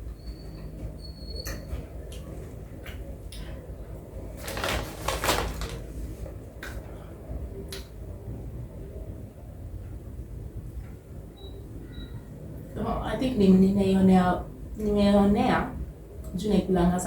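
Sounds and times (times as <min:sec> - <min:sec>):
rustling crackling burst: 0:04.4 - 0:06.1.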